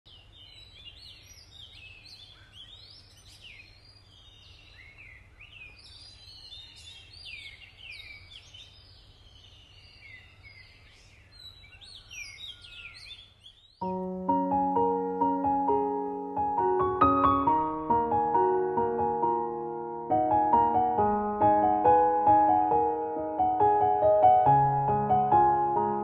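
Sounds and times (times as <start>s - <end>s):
birds singing and chirping: 0.1s - 15.9s.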